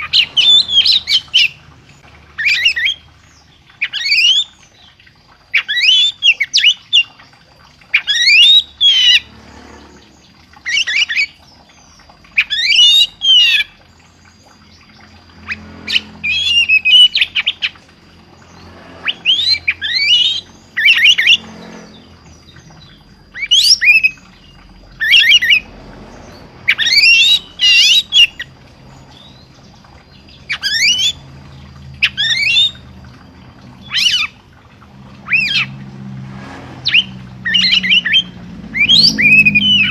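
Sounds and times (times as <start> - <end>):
songbird whistling phrases: 36.9 - 39.9.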